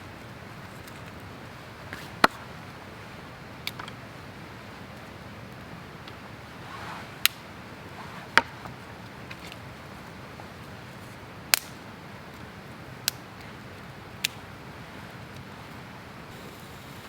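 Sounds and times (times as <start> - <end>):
fire low hiss: 4.2 - 17.0
campfire snaps: 7.2 - 7.4, 11.5 - 15.5.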